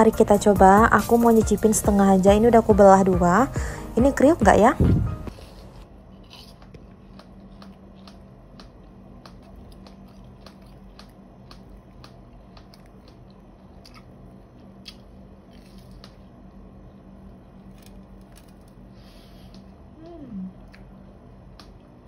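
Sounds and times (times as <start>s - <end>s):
low steady hum: 0.0s - 22.0s
person chewing crunchy snack: 5.3s - 16.6s, 17.2s - 19.8s.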